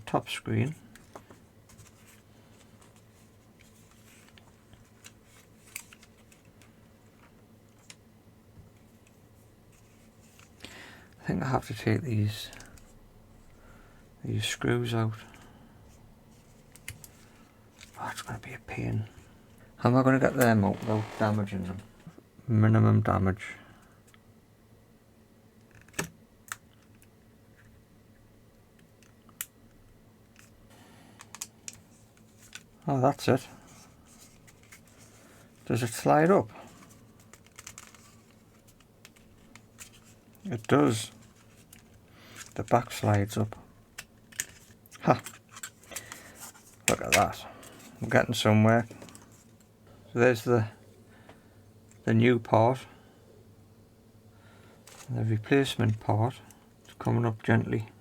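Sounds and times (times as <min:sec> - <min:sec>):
faint steady hum: 0:00.0 - 0:58.0
small clicks and taps of handling: 0:31.2 - 0:32.7, 0:36.8 - 0:40.4, 0:43.9 - 0:47.3.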